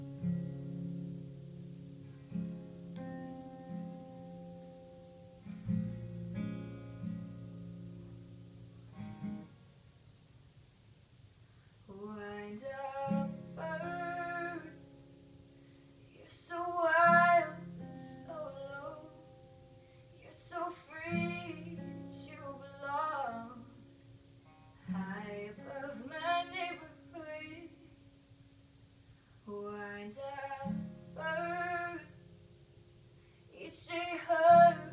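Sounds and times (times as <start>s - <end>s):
acoustic guitar chords: 0.0s - 10.6s, 11.9s - 34.9s
girl singing slow song: 11.7s - 28.2s, 29.3s - 32.4s, 33.2s - 34.9s.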